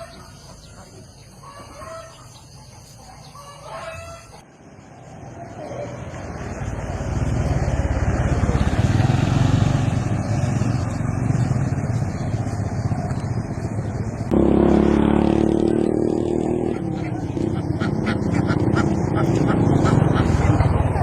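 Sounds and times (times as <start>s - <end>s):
engine running: 6.0s - 21.0s.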